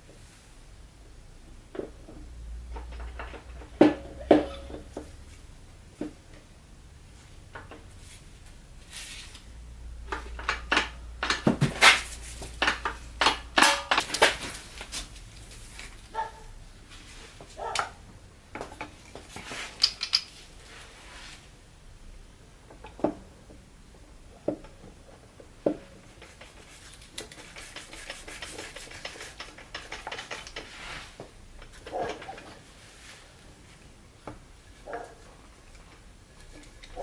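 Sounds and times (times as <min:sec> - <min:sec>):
metal parts clinking: 0:10.1 - 0:14.6, 0:19.8 - 0:20.4.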